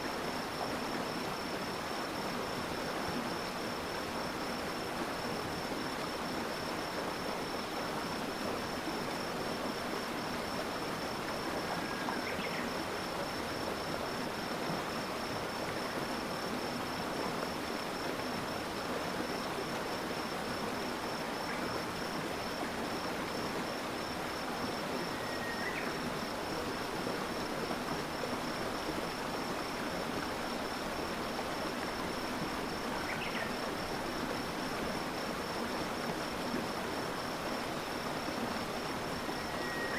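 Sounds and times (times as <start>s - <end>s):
stream water rushing: 0.0s - 39.9s
high insect trill: 39.2s - 39.9s.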